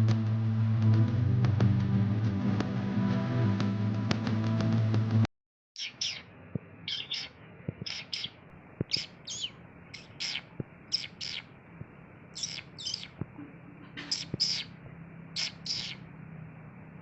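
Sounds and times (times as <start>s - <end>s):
small bird chirping: 5.8s - 11.5s, 12.3s - 13.2s, 13.9s - 16.1s.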